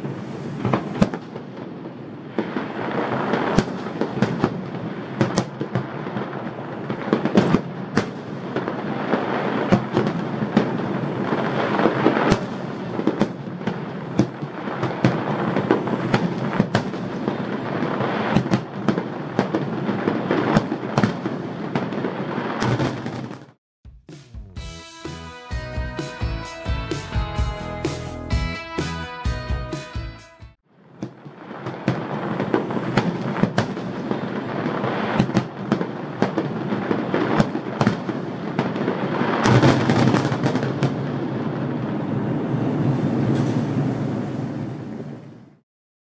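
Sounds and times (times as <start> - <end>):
firework shell bursts rumbling: 0.0 - 1.5
fireworks crackling: 0.0 - 23.6, 24.6 - 30.0, 30.7 - 43.6
sharp firework bangs: 0.0 - 23.6, 31.0 - 43.7.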